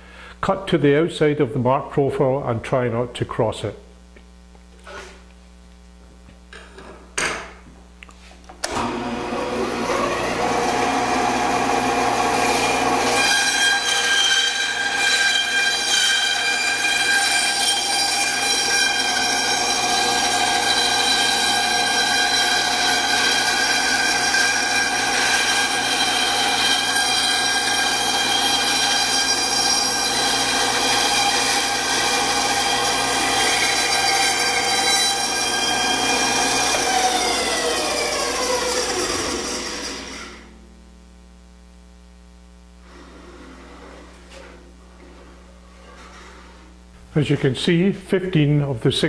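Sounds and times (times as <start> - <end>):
band saw cutting wood: 8.7 - 40.5.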